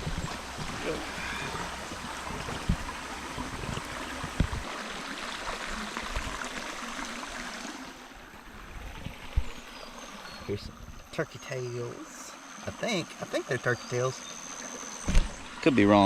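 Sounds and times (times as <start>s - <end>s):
low thumps: 0.0s - 4.6s
stream water rushing: 0.0s - 16.0s.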